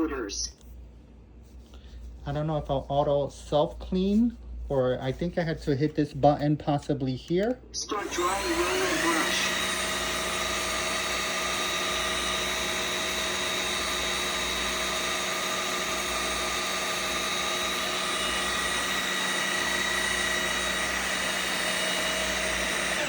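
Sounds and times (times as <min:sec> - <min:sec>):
floor washer fan whirring: 0:07.8 - 0:23.0.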